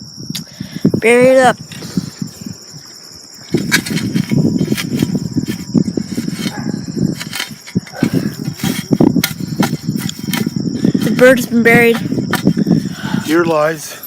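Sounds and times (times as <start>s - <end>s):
crickets chirping: 0.0s - 14.0s
shovel scraping soil: 3.4s - 12.6s.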